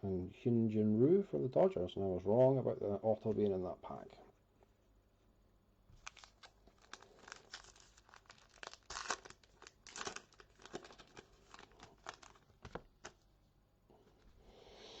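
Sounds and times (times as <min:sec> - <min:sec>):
wrapper tearing and crinkling: 0:06.0 - 0:13.2.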